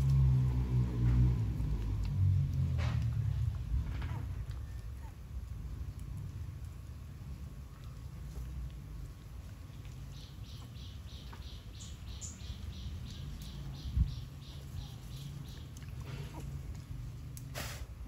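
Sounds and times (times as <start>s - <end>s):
low handling rumble: 0.0s - 17.5s
bird chirping: 10.0s - 15.9s.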